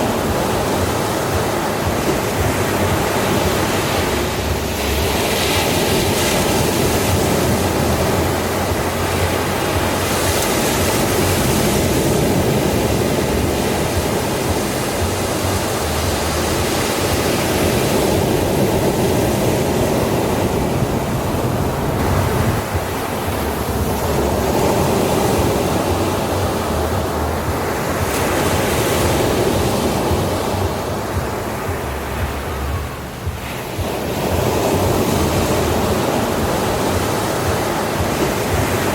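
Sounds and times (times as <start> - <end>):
ocean surf washing onto beach: 0.0 - 38.9.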